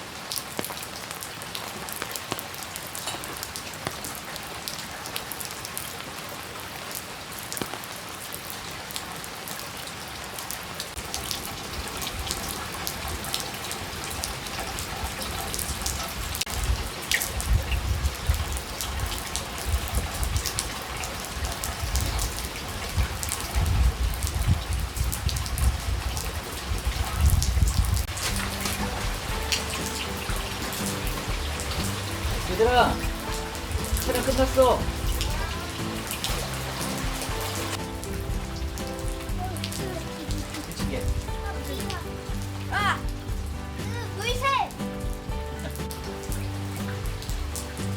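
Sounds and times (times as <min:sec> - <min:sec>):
rain falling: 0:00.0 - 0:47.9
raindrops pattering: 0:00.0 - 0:47.9.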